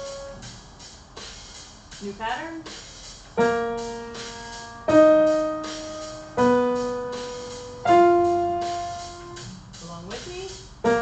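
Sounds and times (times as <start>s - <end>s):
piano playing single notes: 3.4s - 9.5s.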